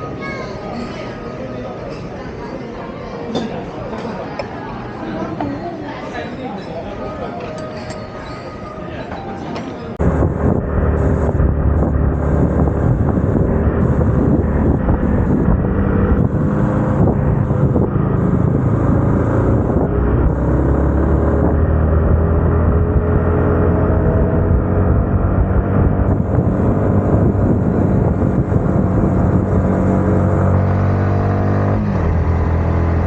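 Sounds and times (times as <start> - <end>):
motorcycle engine accelerating: 10.0 - 33.0
wind noise on microphone: 10.0 - 33.0.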